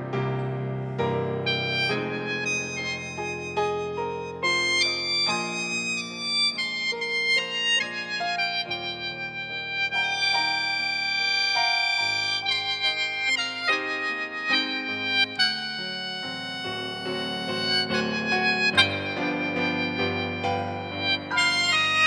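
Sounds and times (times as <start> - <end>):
mouth organ playing chords: 0.0 - 22.0
synthesizer piano accompaniment: 0.0 - 22.0.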